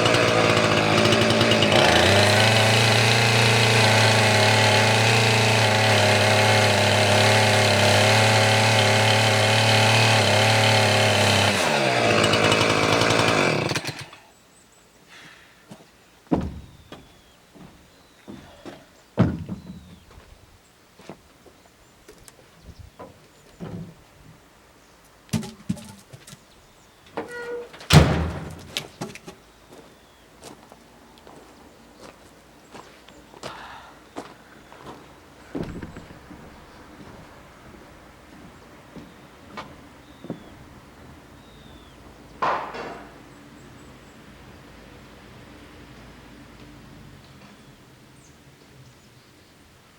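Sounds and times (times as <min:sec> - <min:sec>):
chainsaw running: 0:00.0 - 0:14.3, 0:25.3 - 0:26.1
firewood knocking and thunking: 0:16.3 - 0:20.3, 0:23.0 - 0:24.0, 0:25.3 - 0:26.4, 0:27.1 - 0:29.4, 0:35.5 - 0:37.2, 0:42.4 - 0:43.2
heavy wooden thump: 0:16.3 - 0:20.3, 0:25.3 - 0:26.2, 0:27.9 - 0:29.1, 0:35.6 - 0:36.6, 0:42.4 - 0:43.2.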